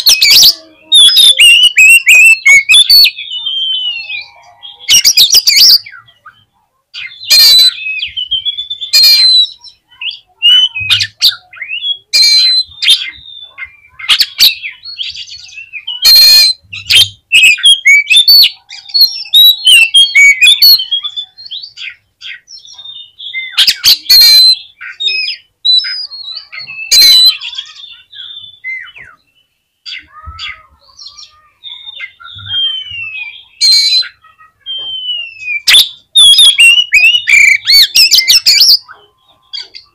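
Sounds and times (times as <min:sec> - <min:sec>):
bird whistled song: 0:00.0 - 0:39.9.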